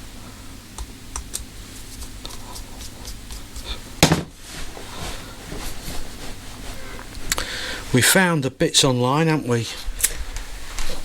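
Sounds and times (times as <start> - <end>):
knock: 4.0 - 4.3.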